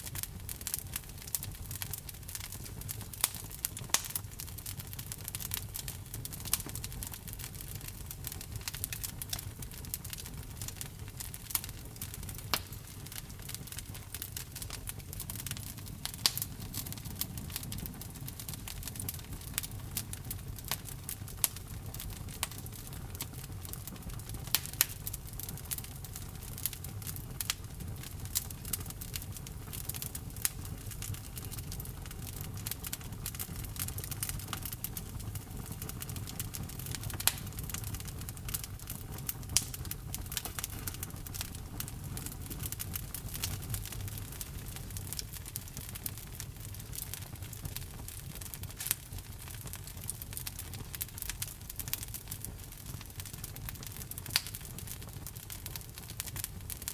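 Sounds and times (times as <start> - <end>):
fire crackling and popping: 0.0 - 56.9
low rumble of flame: 0.0 - 56.9.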